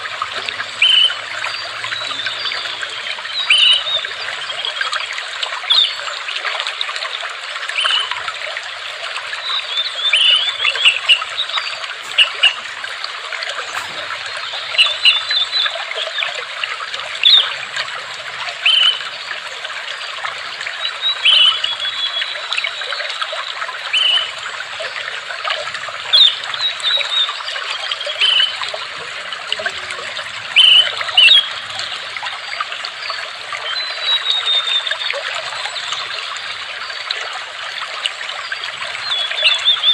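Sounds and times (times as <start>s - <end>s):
water trickling: 0.0s - 39.9s
high bird chirps: 9.5s - 13.0s, 13.6s - 15.8s, 20.3s - 22.7s.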